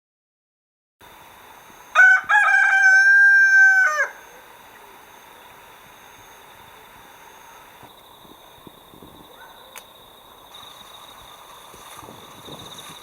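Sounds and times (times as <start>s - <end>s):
rooster crowing: 1.9s - 4.4s.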